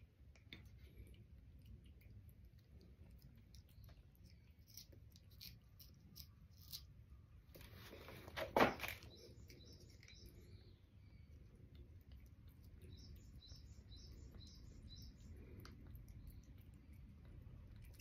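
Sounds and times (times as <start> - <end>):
faint bird chirps: 12.7 - 16.6.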